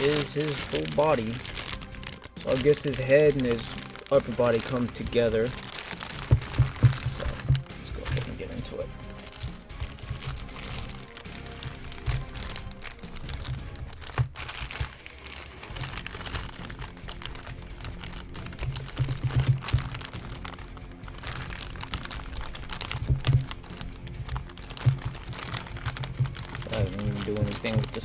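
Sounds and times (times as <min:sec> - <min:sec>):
background music: 0:00.0 - 0:28.0
plastic packaging crinkling: 0:00.0 - 0:28.0.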